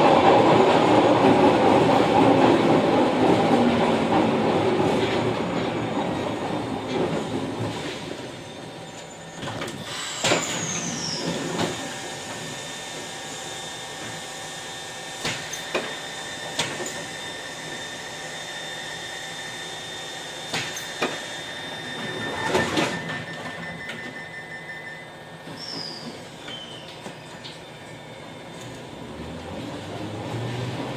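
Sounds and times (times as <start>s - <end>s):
subway train running noise: 0.0s - 30.9s
train brake squeal: 8.4s - 13.9s, 15.3s - 28.7s
steady high tone: 21.7s - 25.5s.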